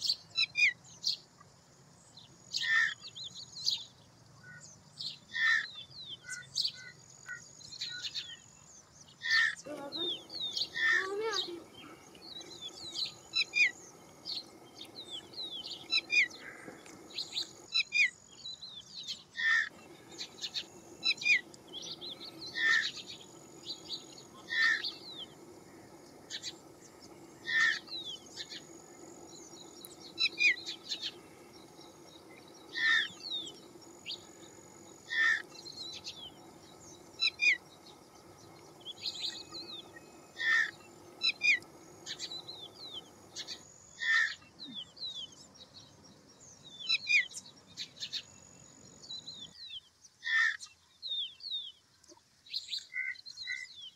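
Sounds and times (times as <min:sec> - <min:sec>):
faint steady low hum: 0:08.1 - 0:17.8, 0:19.7 - 0:49.5.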